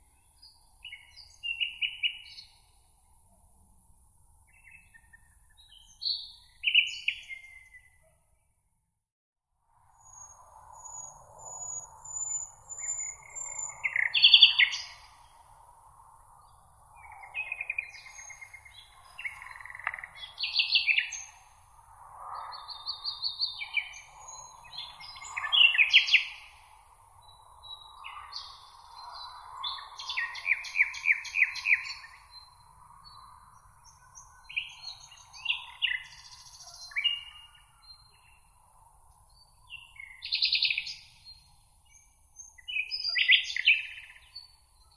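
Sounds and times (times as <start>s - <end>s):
songbirds singing: 0.0s - 3.2s, 4.4s - 8.2s, 10.0s - 44.9s.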